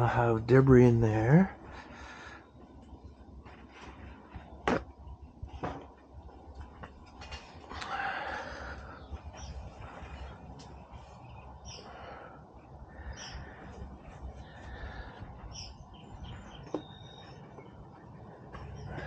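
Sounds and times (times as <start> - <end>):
birds chirping: 0.0 - 19.0
low background noise: 0.0 - 19.0.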